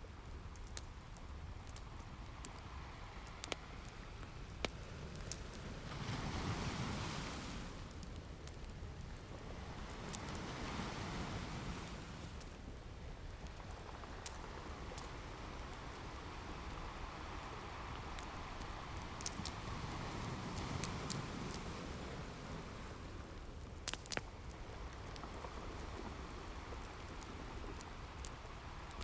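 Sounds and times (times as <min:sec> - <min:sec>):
wood fire crackling: 0:00.0 - 0:29.0
ocean waves rushing: 0:05.6 - 0:08.0, 0:09.3 - 0:12.5, 0:14.4 - 0:23.2.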